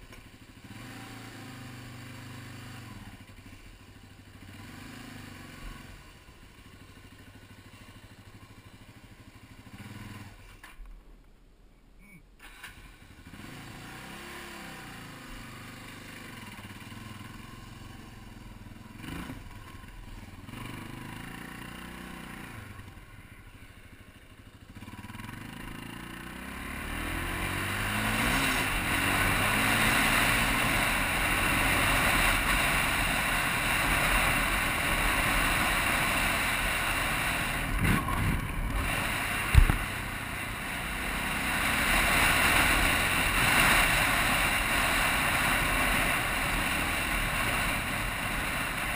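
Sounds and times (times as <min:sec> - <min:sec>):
motorcycle engine revving: 0:00.0 - 0:10.7, 0:12.6 - 0:48.9
wind noise on microphone: 0:37.7 - 0:39.8.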